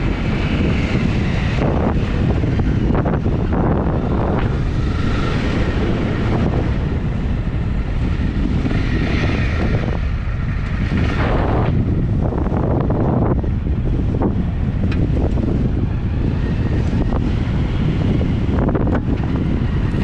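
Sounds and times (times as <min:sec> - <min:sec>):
motorcycle engine riding at speed: 0:00.0 - 0:20.0
wind buffeting on microphone: 0:00.0 - 0:20.0.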